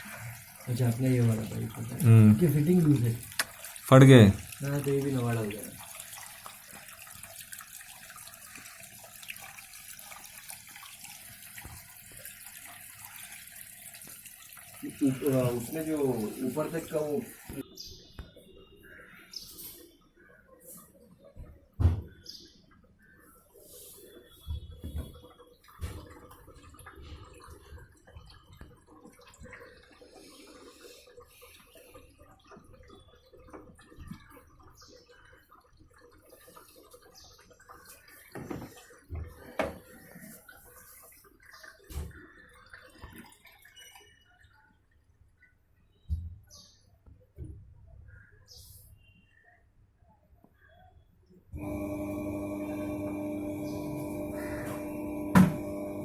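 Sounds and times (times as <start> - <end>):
water flowing hiss: 0.0 - 17.6, 30.1 - 31.9, 51.6 - 56.0
faint motor hum: 51.6 - 56.0.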